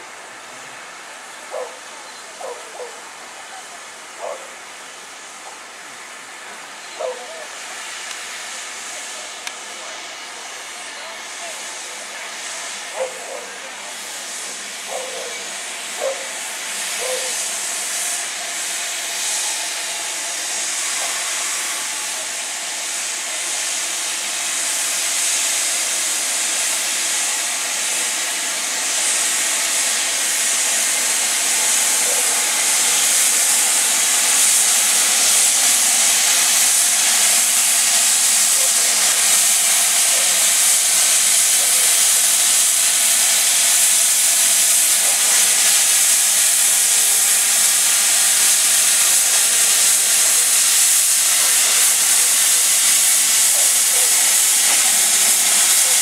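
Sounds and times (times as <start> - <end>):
steam locomotive hissing steam: 0.0 - 56.0.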